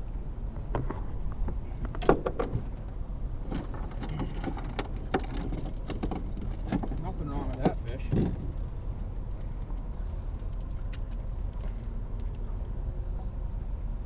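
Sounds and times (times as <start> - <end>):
fish handling clicks and knocks: 0.6 - 9.8.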